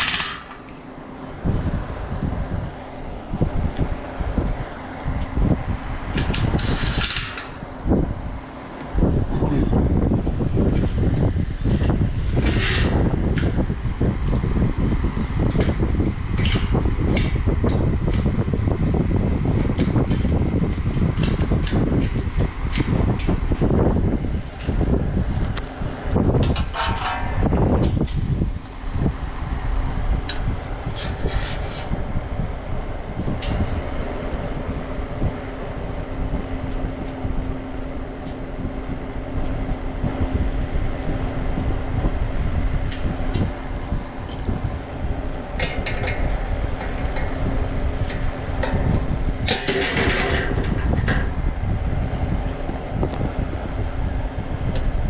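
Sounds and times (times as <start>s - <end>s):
hum: 0.0s - 55.0s
low mechanical rumble: 0.0s - 55.0s.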